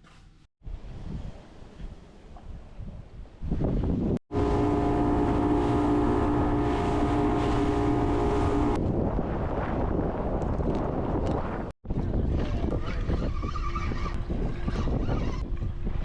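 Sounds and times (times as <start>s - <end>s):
wind noise on microphone: 0.6s - 16.0s
water rumble: 4.0s - 16.0s
boat motor running: 4.3s - 8.8s.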